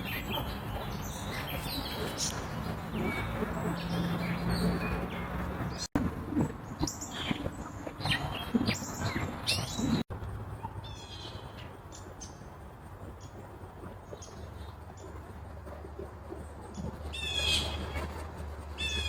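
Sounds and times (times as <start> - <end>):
birds chirping and calling: 0.0 - 5.9, 6.6 - 10.0, 16.7 - 19.0.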